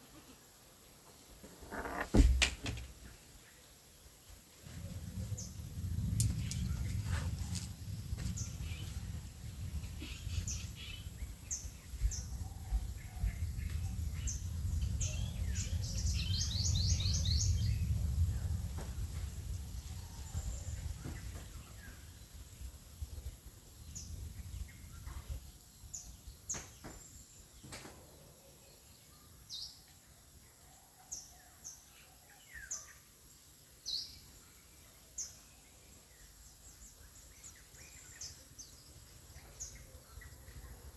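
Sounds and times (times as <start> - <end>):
low rumble: 4.7 - 11.5
small birds chirping: 5.0 - 18.0.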